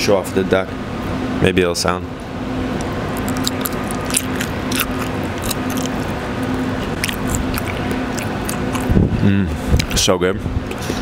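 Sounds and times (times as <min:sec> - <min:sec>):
steady background hum: 0:00.0 - 0:11.0
wet chewing crunches: 0:03.1 - 0:09.1.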